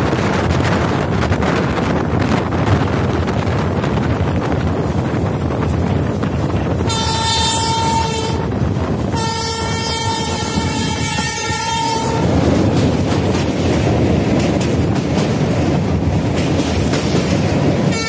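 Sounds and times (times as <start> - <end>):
train running noise and wind: 0.0 - 18.0
train horn: 6.8 - 12.4.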